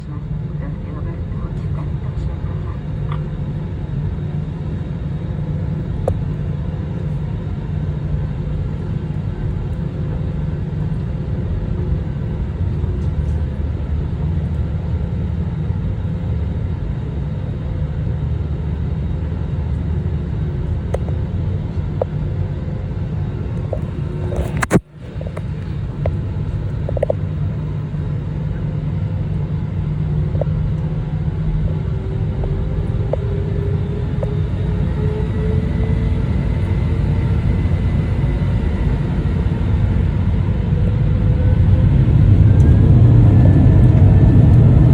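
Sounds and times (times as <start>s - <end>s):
airliner engine rumble: 0.0s - 44.9s
sharp click: 24.4s - 24.8s.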